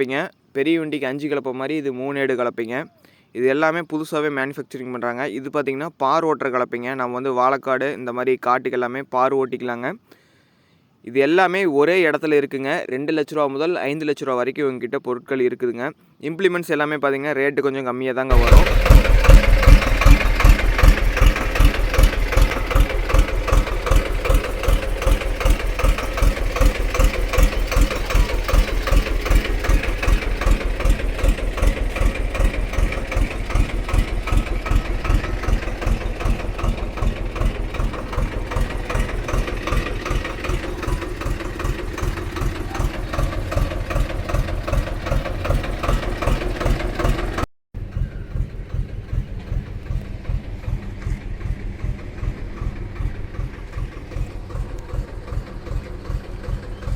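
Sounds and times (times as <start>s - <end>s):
diesel tractor engine idling: 18.3s - 56.9s.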